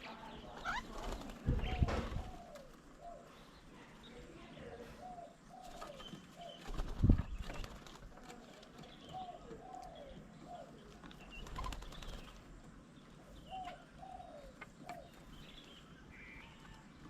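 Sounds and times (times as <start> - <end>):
small birds chirping: 0.0 - 17.0
dove cooing: 0.4 - 3.5, 4.6 - 6.6, 8.1 - 12.2, 13.3 - 15.1.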